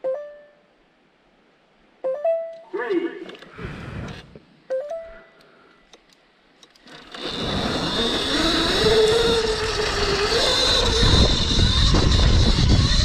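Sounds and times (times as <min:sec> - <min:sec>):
wind: 0:00.0 - 0:13.0
electric motor whine: 0:06.8 - 0:13.0.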